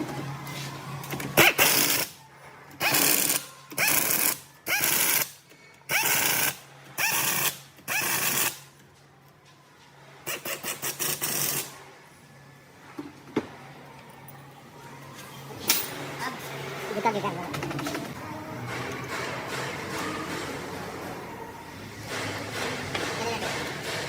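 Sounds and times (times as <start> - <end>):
pneumatic tool whining: 2.8 - 8.6.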